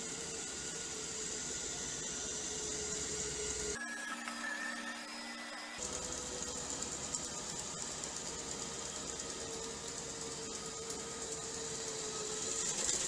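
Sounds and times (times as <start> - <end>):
thin whine: 0.0 - 7.6
robot vacuum cleaner whirring: 0.0 - 13.0.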